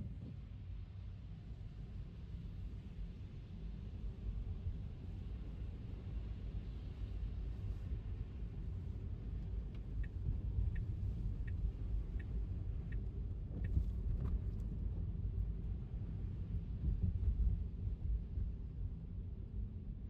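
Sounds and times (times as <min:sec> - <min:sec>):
light even ticks: 0:09.7 - 0:14.7.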